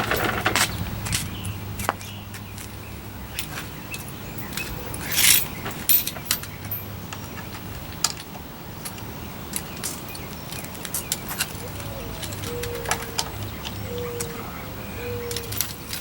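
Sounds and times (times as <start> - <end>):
metal hand tools clinking: 3.4 - 7.1, 8.0 - 14.4, 15.0 - 16.0.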